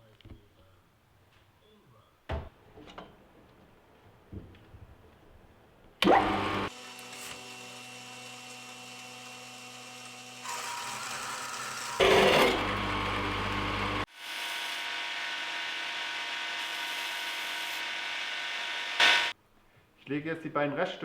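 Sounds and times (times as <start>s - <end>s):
workshop tool noise: 6.0s - 19.3s.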